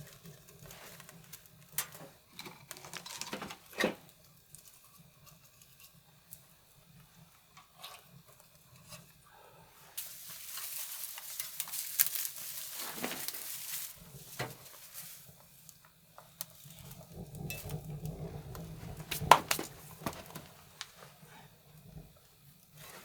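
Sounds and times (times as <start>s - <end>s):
fire crackling and hissing: 0.0s - 23.0s
fire snapping: 10.0s - 22.8s.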